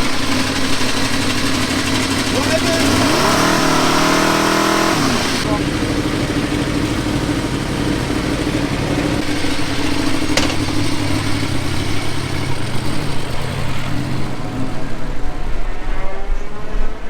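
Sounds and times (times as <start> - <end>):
motorcycle engine running: 0.0 - 15.6.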